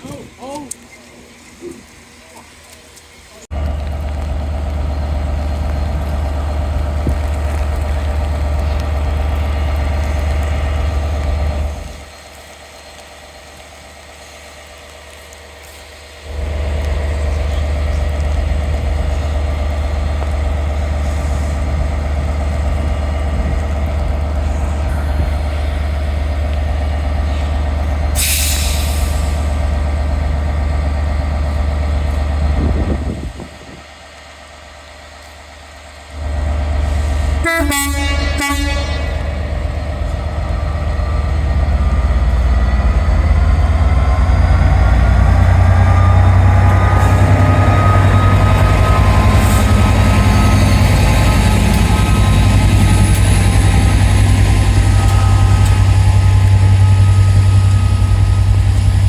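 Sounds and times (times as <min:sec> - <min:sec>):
diesel train engine running: 0:00.0 - 0:59.0
two-note train horn: 0:37.4 - 0:39.4.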